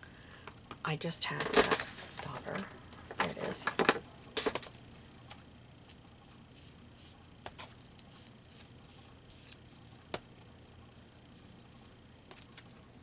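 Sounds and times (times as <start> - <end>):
low steady hum: 0.0 - 13.0
paper and craft supplies rustling: 1.4 - 5.5.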